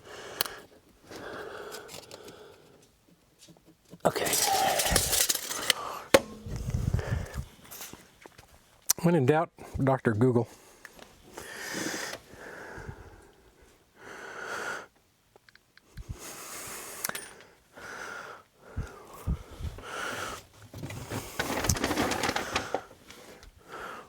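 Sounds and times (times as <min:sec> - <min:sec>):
person breathing heavily: 0:00.0 - 0:02.8, 0:04.2 - 0:07.8, 0:10.5 - 0:14.9, 0:16.0 - 0:20.5, 0:21.1 - 0:24.0.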